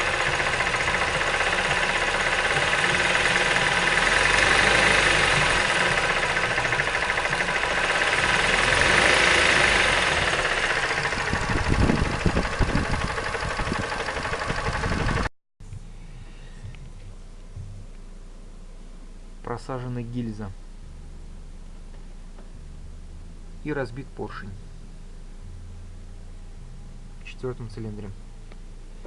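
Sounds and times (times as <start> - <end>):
car engine knocking: 0.0 - 15.3
loud engine thumps: 0.0 - 15.9, 16.6 - 17.9.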